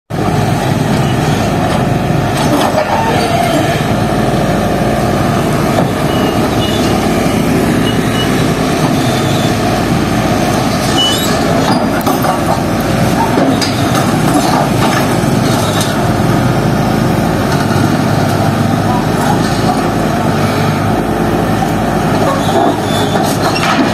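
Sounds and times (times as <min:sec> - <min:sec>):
road-works machine breaking road: 0:00.2 - 0:23.9
metallic squeals and clanks: 0:02.4 - 0:03.9, 0:05.8 - 0:09.6, 0:10.7 - 0:12.5, 0:13.2 - 0:14.6, 0:22.2 - 0:23.9.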